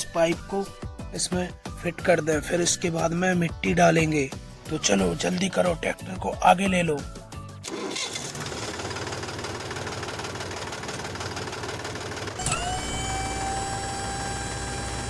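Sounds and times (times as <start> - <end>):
small tractor motor clattering: 7.6 - 15.0.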